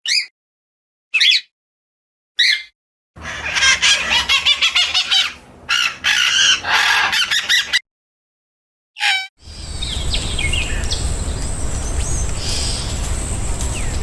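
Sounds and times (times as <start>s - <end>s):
birds chirping: 2.4s - 7.8s, 9.4s - 14.0s
rapid harsh bird calls: 2.4s - 7.8s, 9.0s - 14.0s.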